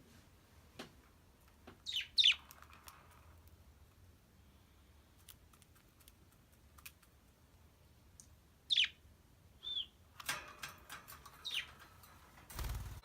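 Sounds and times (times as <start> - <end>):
bird chirping: 1.8 - 2.7, 8.6 - 10.1, 11.3 - 12.0.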